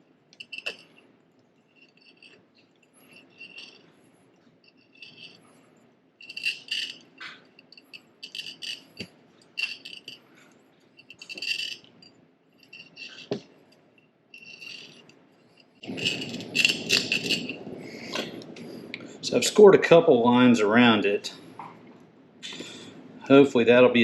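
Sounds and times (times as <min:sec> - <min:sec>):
glass cutter scraping on bottle: 0:00.4 - 0:01.0, 0:03.0 - 0:03.9, 0:04.7 - 0:05.6, 0:06.2 - 0:10.3, 0:11.1 - 0:12.0, 0:12.6 - 0:13.4, 0:14.4 - 0:18.5.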